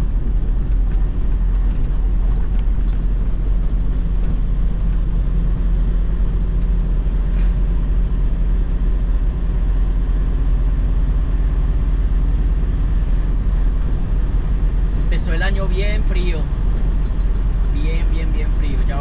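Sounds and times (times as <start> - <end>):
diesel engine drone: 0.0 - 19.0
road and tyre noise: 0.0 - 19.0
short hiss: 7.3 - 7.7.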